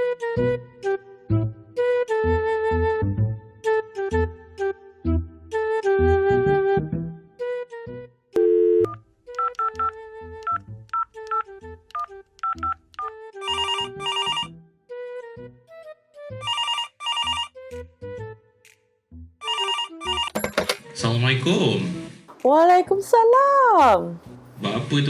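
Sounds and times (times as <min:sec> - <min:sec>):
plucked background music: 0:00.0 - 0:16.5, 0:17.5 - 0:25.0
telephone ringing: 0:13.4 - 0:14.5, 0:16.4 - 0:17.6, 0:19.4 - 0:20.9.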